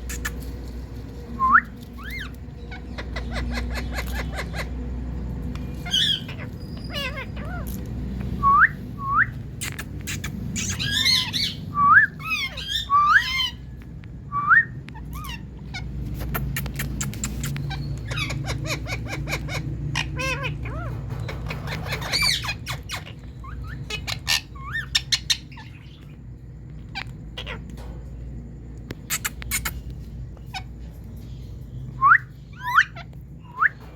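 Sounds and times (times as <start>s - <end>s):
parakeet squawking and whistling: 0.0s - 0.6s, 1.3s - 13.7s, 14.3s - 27.6s, 29.0s - 33.9s
low background rumble: 0.0s - 33.9s.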